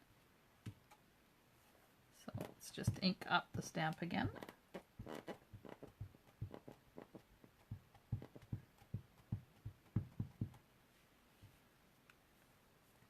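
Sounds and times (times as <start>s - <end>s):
rubber stamp tapping ink pad: 2.8s - 10.6s.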